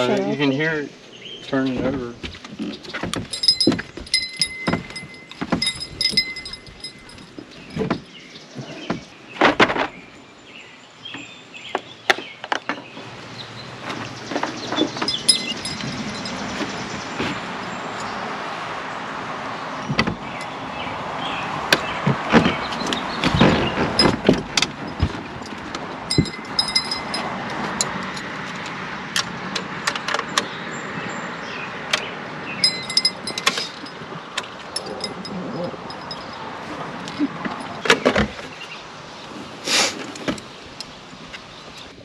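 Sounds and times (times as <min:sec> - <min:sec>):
metallic clinks of tools: 0:03.3 - 0:07.8, 0:15.1 - 0:16.6, 0:24.0 - 0:28.3, 0:32.6 - 0:34.0, 0:34.7 - 0:37.9.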